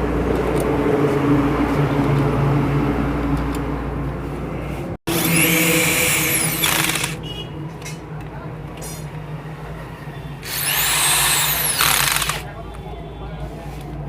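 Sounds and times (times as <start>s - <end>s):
power tool motor whining: 5.1s - 7.2s, 10.4s - 12.5s.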